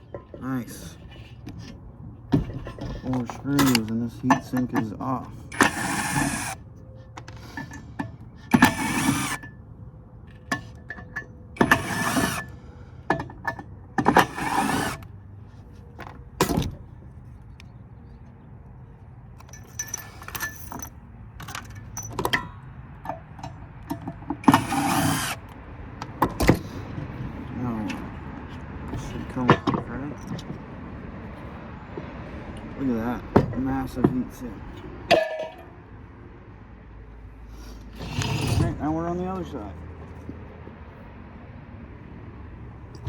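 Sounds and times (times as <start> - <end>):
metal parts clicking and knocking: 2.3 - 6.6, 19.4 - 27.2.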